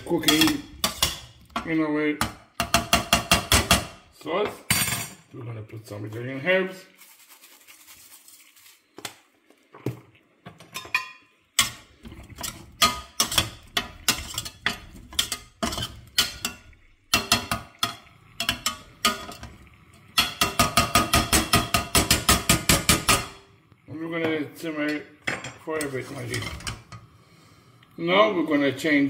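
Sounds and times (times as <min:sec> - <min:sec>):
utensils clinking on cookware: 0:00.0 - 0:05.3, 0:10.5 - 0:23.4, 0:24.8 - 0:27.0.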